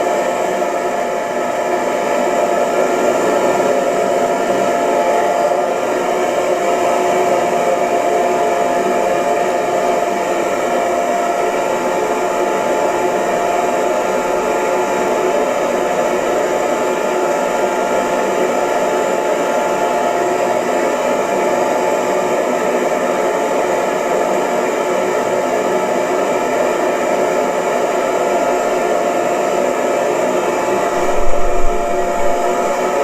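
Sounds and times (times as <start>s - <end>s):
hair dryer running: 0.0s - 33.0s
faint motor whine: 30.3s - 33.0s.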